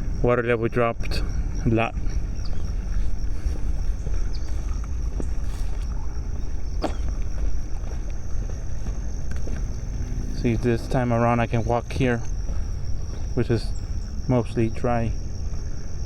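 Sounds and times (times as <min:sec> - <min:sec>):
high insect drone: 0:00.0 - 0:16.0
low rumble: 0:00.9 - 0:16.0.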